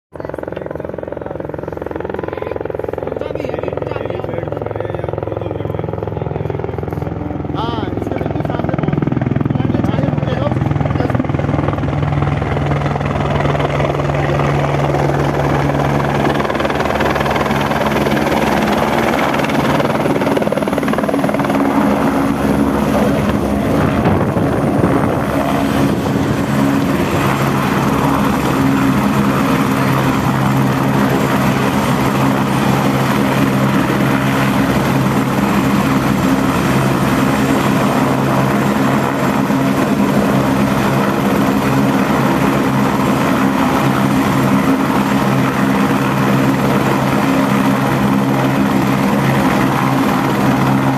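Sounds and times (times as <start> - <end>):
helicopter rotor and engine: 0.1 - 50.9.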